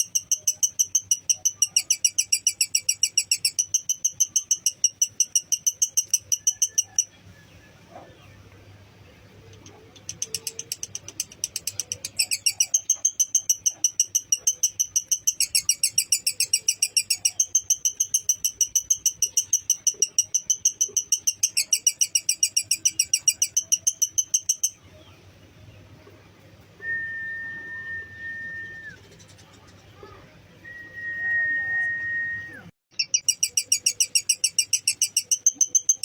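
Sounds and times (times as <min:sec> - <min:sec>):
bird chattering trill: 0:00.0 - 0:07.2, 0:09.3 - 0:25.2, 0:32.9 - 0:36.0.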